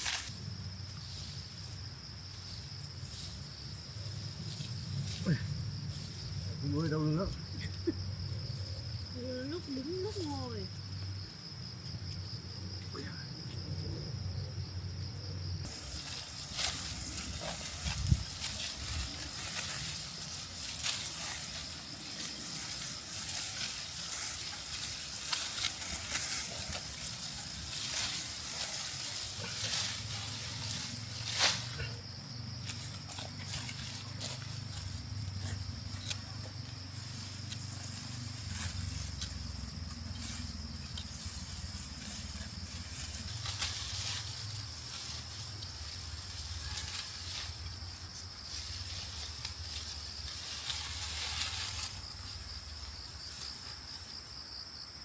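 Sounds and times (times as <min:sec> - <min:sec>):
rice plants rustling and crackling: 0:00.0 - 0:06.5, 0:15.7 - 0:54.2
high insect drone: 0:00.0 - 0:55.0.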